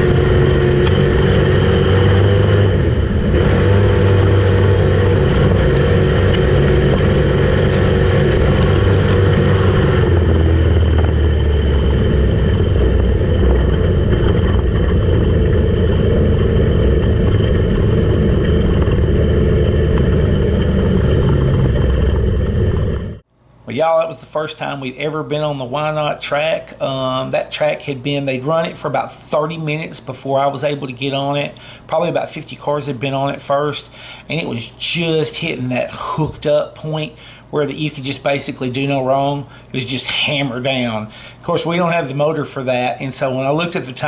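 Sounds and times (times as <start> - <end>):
race car engine at speed: 0.0 - 23.2.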